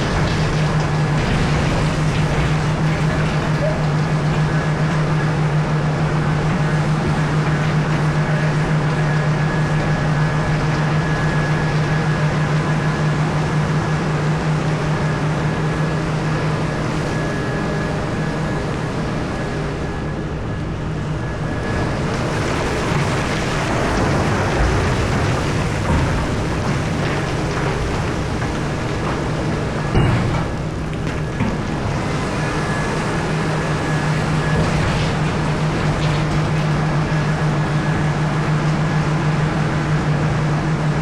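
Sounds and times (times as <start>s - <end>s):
engine knocks: 0.0s - 17.6s, 21.6s - 40.3s
excavator engine running: 0.0s - 41.0s.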